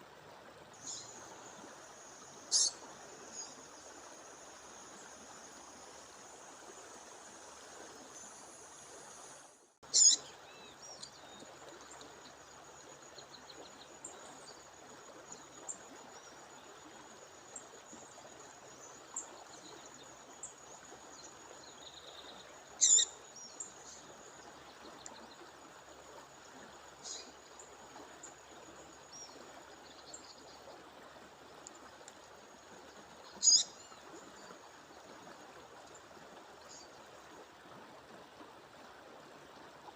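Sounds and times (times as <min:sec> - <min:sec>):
songbird calling: 0:00.8 - 0:01.7, 0:02.4 - 0:03.8, 0:09.8 - 0:11.4, 0:21.2 - 0:24.1, 0:27.0 - 0:27.4, 0:33.2 - 0:34.6
faint bird chirps: 0:02.5 - 0:03.6, 0:09.9 - 0:11.4, 0:21.2 - 0:24.0, 0:33.3 - 0:34.6.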